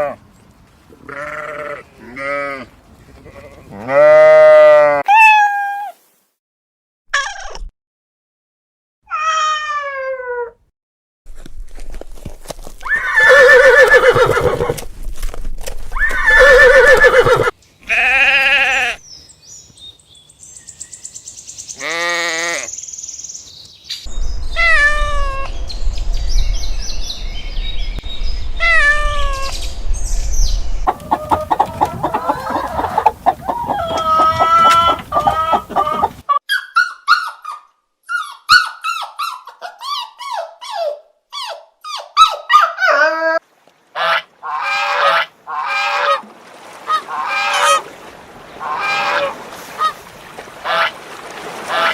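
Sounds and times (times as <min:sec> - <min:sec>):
goat bleating: 0:01.0 - 0:05.1, 0:17.9 - 0:19.0, 0:21.8 - 0:22.7, 0:30.9 - 0:36.2
short falling animal calls: 0:30.9 - 0:36.3.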